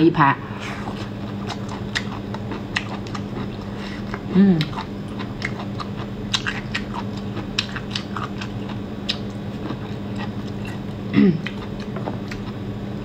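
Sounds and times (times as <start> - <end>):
wet crunching and chewing: 0.9 - 12.6
person humming: 4.3 - 4.8, 11.1 - 11.5.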